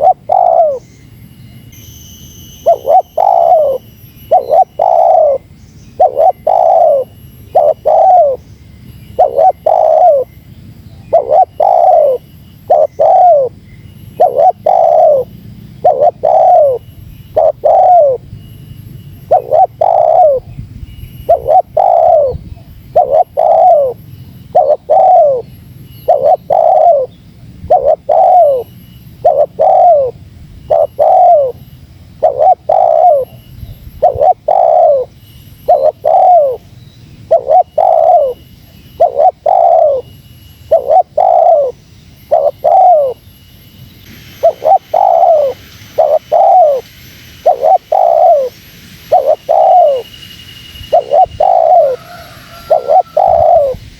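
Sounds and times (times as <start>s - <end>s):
dove cooing: 0.0s - 0.9s, 2.6s - 8.4s, 9.1s - 18.3s, 19.2s - 20.5s, 21.3s - 43.2s, 44.4s - 50.1s, 50.9s - 53.9s.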